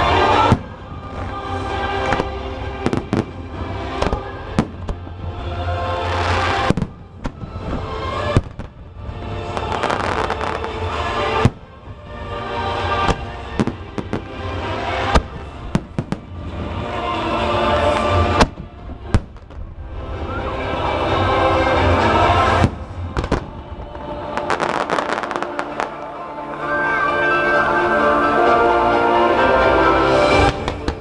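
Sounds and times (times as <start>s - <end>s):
fireworks bangs: 0.0s - 5.2s, 6.0s - 12.0s, 12.8s - 17.0s, 17.8s - 19.8s, 21.8s - 26.2s, 30.3s - 31.0s
music: 0.0s - 31.0s.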